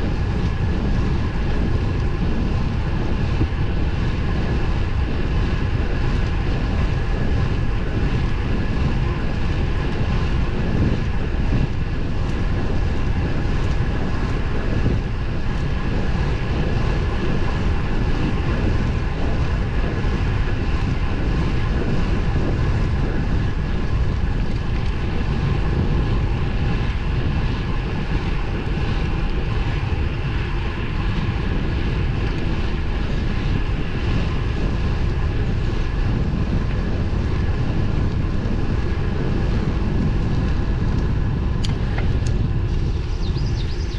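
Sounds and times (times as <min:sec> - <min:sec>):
wind rushing over microphone: 0:00.0 - 0:43.9.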